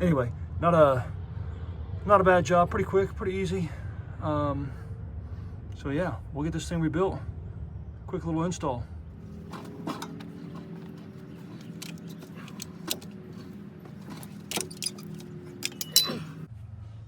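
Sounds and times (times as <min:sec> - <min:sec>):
steady low hum: 0:00.0 - 0:17.0
metal tools clinking: 0:09.3 - 0:16.5.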